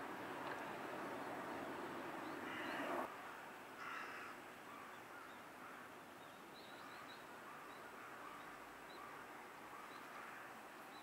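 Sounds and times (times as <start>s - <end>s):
rushing background noise: 0.0s - 3.5s
harsh bird calls: 1.2s - 3.1s.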